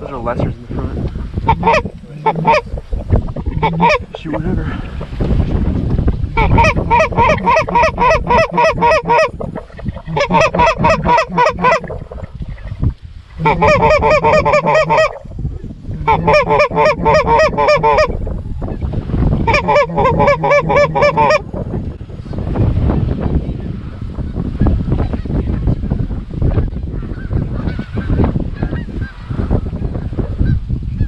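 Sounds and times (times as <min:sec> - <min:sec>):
low wind rumble: 0:00.0 - 0:31.0
geese clucking: 0:01.4 - 0:05.2, 0:06.3 - 0:15.3, 0:16.0 - 0:21.6.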